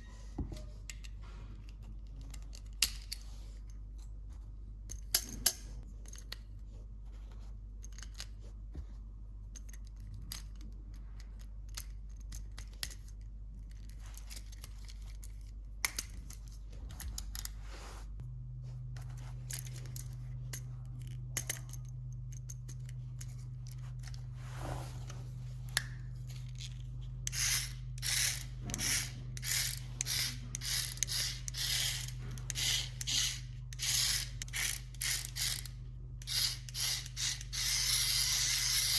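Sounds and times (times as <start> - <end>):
steady low hum: 0.0 - 38.9
clicks and rustles of toys: 0.9 - 17.6.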